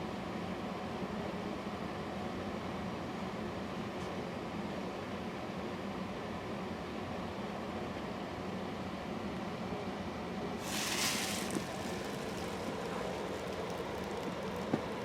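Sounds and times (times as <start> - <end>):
burst of hissing: 10.6 - 14.3.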